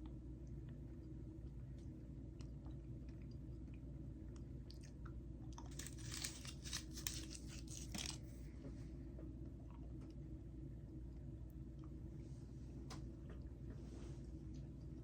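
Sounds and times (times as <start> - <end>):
person chewing gum: 4.3 - 8.2
gum crackling and snapping: 5.5 - 8.2.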